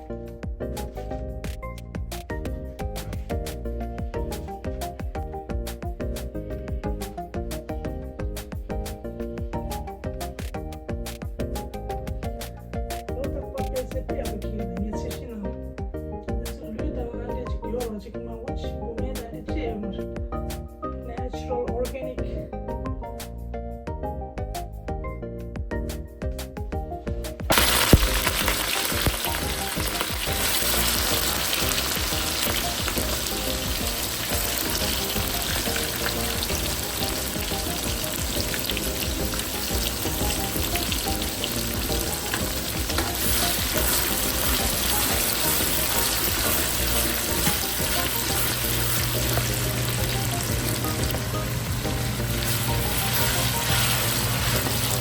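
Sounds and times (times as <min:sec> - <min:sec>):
food sizzling in a hot pan: 0:27.5 - 0:55.0.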